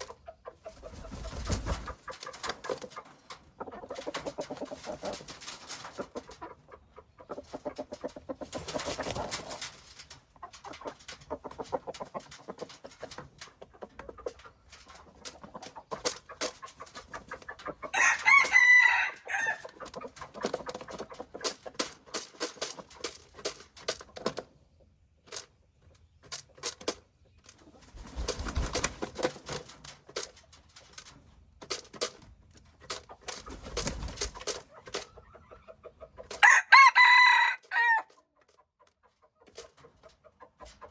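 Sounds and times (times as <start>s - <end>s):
chickens clucking: 0.0s - 40.9s
rooster crowing: 17.9s - 19.6s, 36.4s - 38.1s.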